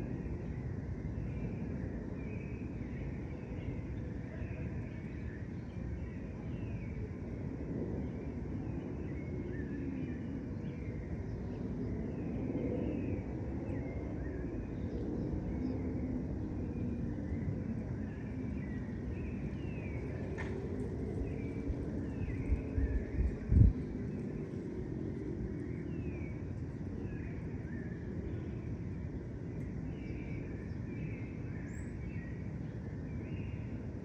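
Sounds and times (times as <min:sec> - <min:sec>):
city traffic rumble: 0:16.2 - 0:34.0.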